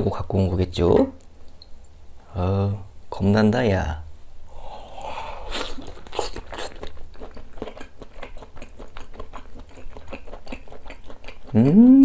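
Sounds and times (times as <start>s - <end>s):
mouth clicks and smacks: 4.8s - 12.0s
biting chewy meat: 5.5s - 11.8s.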